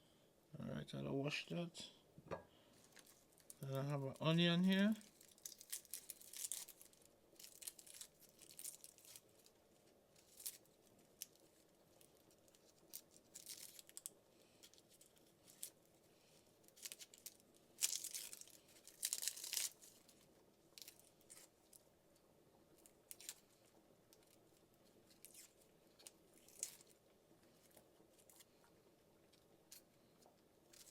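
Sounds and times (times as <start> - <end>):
onion skin peeling: 22.8 - 28.5.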